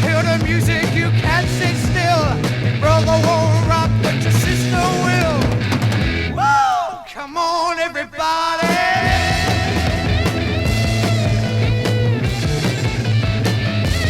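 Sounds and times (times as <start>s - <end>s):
bass and drums: 0.0s - 6.5s, 8.6s - 14.0s
rock guitar lead line: 0.0s - 6.6s, 8.6s - 14.0s.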